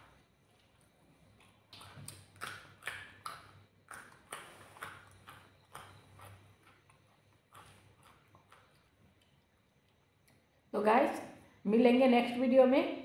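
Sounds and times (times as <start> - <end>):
mouth chewing with lip smacks: 0.5 - 10.4.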